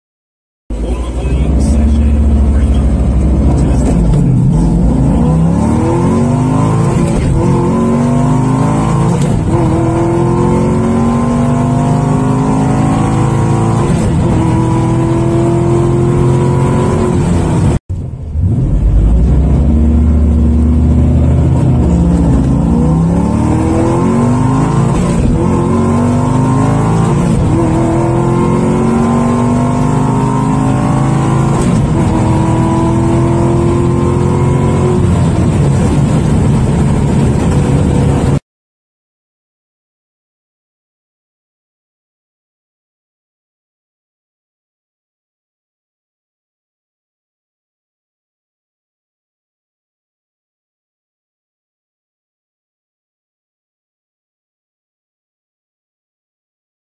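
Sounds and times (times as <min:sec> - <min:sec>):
car engine at full throttle: 0:00.7 - 0:38.4.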